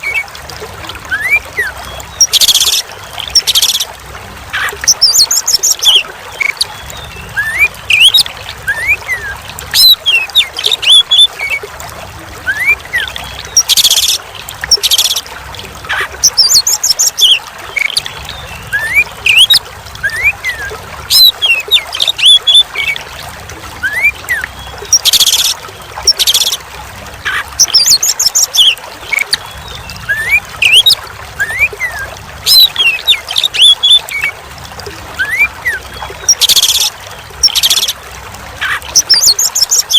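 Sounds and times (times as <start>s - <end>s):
trickling water: 0.0s - 39.9s
bird singing: 4.6s - 11.3s, 15.9s - 23.0s, 23.8s - 26.6s, 27.2s - 34.4s, 35.2s - 38.0s, 38.6s - 39.9s.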